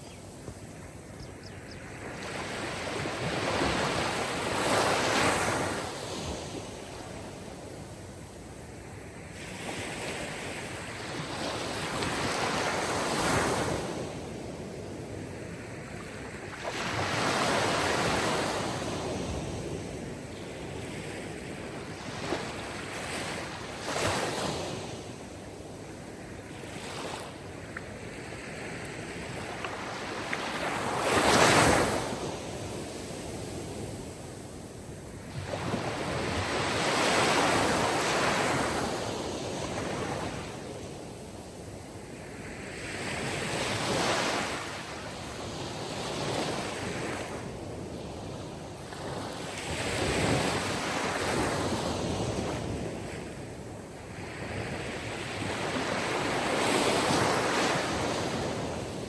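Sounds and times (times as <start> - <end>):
sea waves washing ashore: 1.7 - 59.0.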